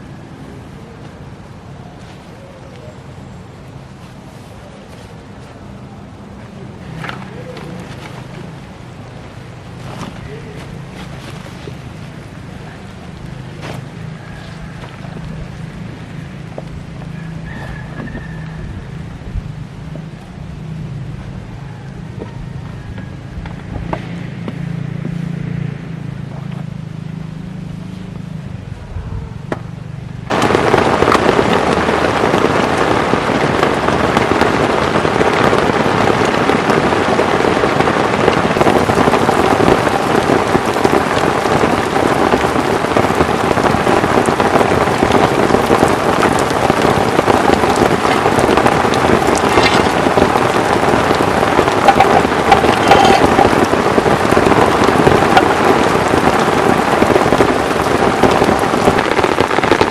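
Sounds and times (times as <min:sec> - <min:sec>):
heavy rain hiss: 0:00.0 - 0:22.2, 0:30.1 - 0:59.9.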